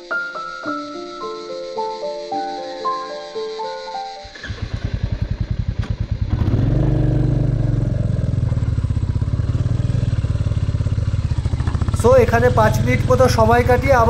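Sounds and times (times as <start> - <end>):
motorcycle engine: 4.3 - 14.0.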